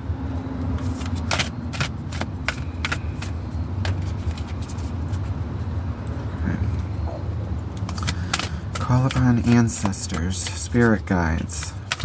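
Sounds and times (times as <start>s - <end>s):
steady low hum: 0.0s - 12.0s
cards being shuffled: 0.8s - 5.4s, 7.8s - 12.0s.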